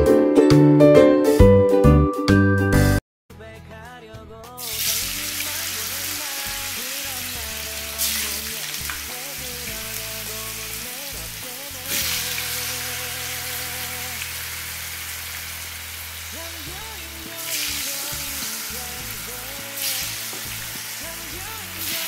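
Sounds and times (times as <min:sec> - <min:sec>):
tofu deep-frying in oil: 0:04.6 - 0:22.0.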